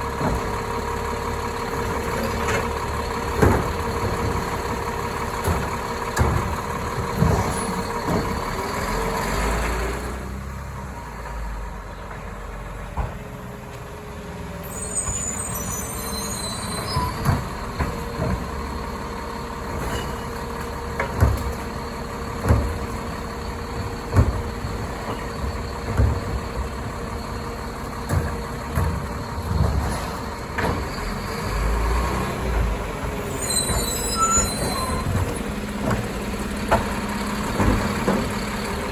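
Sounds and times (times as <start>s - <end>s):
garbage truck diesel engine: 0.0s - 38.9s
short high squeals: 14.6s - 17.3s, 33.2s - 35.2s.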